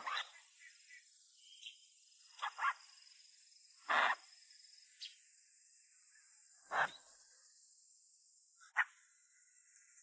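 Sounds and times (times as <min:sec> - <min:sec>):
insects chirring: 0:00.0 - 0:10.0.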